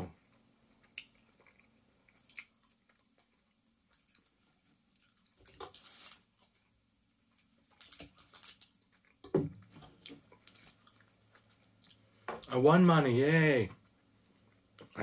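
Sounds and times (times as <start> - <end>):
person chewing: 0.2 - 12.5, 13.8 - 15.0.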